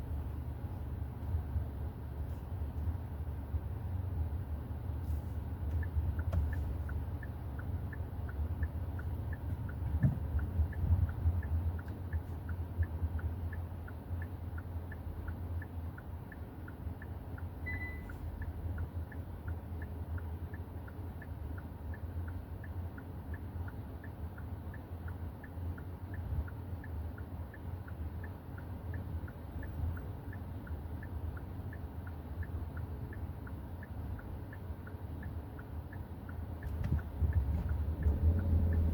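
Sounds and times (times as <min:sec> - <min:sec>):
car engine rumble: 0:00.0 - 0:38.9
road noise: 0:00.0 - 0:38.9
faint even ticking: 0:00.1 - 0:38.9
short high beep: 0:17.7 - 0:18.1.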